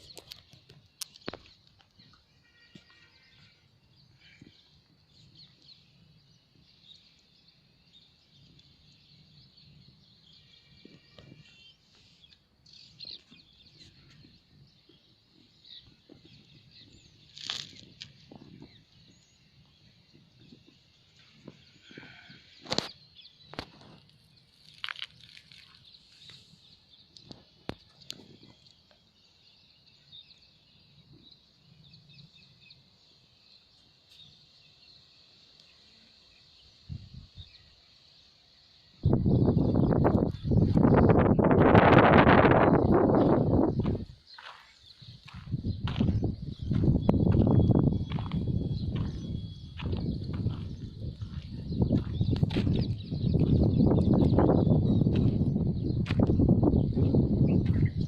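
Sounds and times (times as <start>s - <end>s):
bird calls and clucks: 0.0s - 2.2s, 20.1s - 29.1s, 42.3s - 58.0s.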